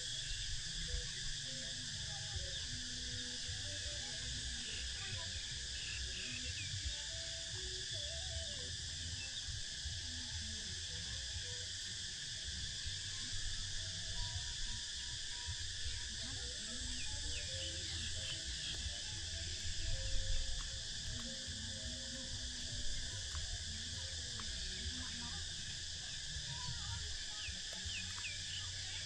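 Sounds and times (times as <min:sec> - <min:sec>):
bird chirps: 0:27.3 - 0:29.0.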